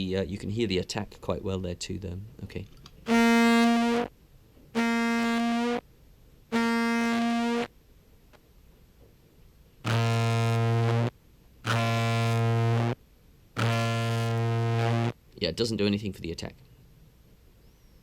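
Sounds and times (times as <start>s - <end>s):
contrabass clarinet notes: 3.1s - 4.1s, 4.8s - 5.8s, 6.5s - 7.7s, 9.8s - 13.0s, 13.6s - 15.2s.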